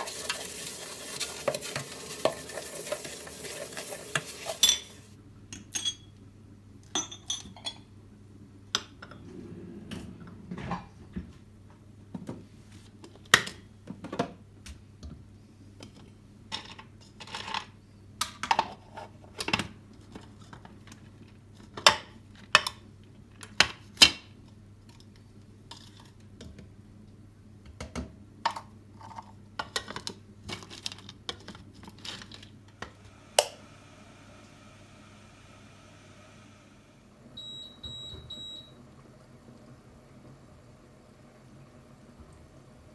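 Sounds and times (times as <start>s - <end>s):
dishes and cutlery clinking: 1.5s - 6.1s
low steady hum: 32.6s - 42.9s.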